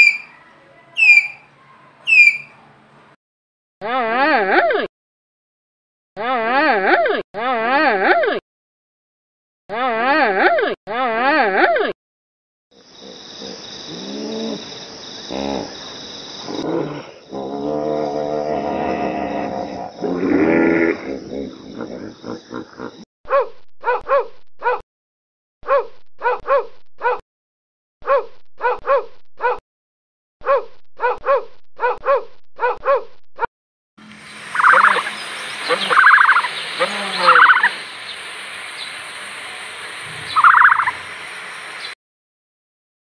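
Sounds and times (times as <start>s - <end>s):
hippopotamus calling: 0.0s - 0.3s, 1.0s - 1.5s, 2.1s - 2.5s, 34.3s - 38.3s, 39.6s - 41.2s
steady hiss: 34.0s - 41.9s.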